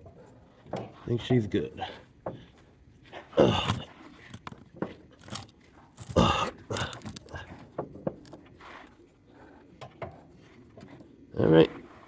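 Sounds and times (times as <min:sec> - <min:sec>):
hand tools clicking and knocking: 0:03.4 - 0:08.4.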